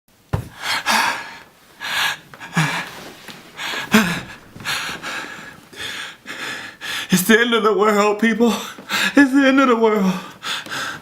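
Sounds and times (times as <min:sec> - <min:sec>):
man breathing hard: 0:00.5 - 0:07.2, 0:10.2 - 0:11.0.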